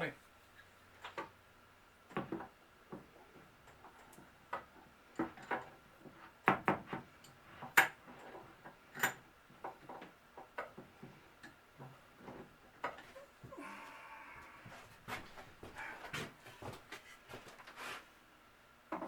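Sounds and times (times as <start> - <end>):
wood and tools knocking: 2.1 - 13.2.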